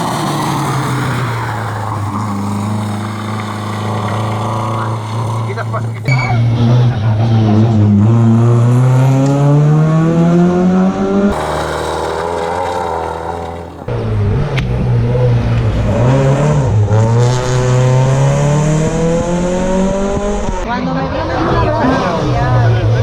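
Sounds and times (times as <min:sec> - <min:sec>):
car gear changes: 0:00.0 - 0:06.1, 0:11.3 - 0:13.9
rally car engines accelerating: 0:00.0 - 0:23.0.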